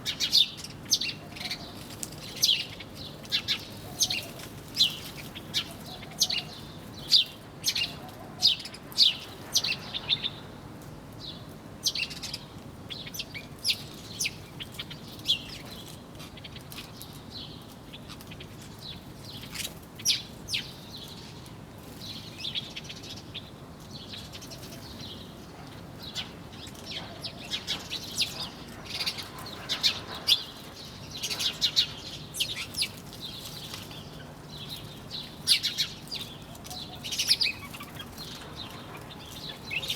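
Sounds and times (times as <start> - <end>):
small birds chirping: 0.0 - 10.6, 11.2 - 39.9.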